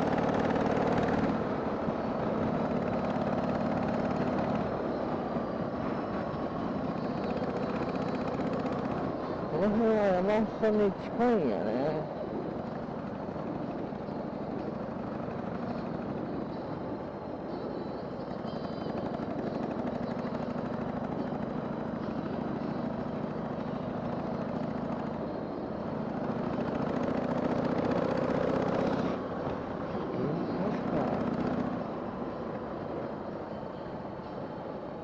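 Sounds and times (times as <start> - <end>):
wind and road noise: 0.0 - 35.0
motorcycle engine running: 18.6 - 31.9.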